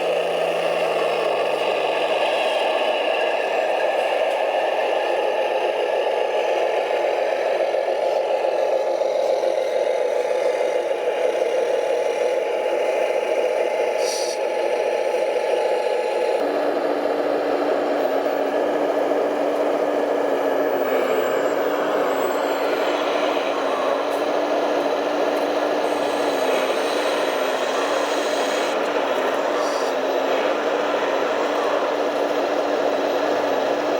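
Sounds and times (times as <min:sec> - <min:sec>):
electric motors whirring: 0:18.0 - 0:33.9.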